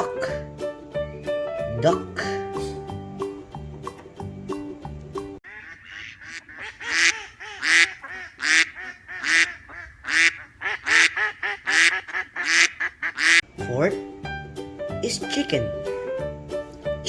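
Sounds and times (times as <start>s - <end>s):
plucked-note music: 1.6s - 5.4s
duck quacking: 5.4s - 13.4s.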